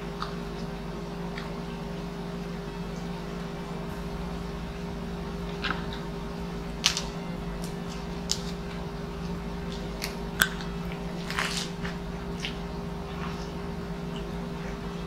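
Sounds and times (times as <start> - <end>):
steady low hum: 0.0 - 15.0
lettuce crunching and chewing: 6.7 - 15.0.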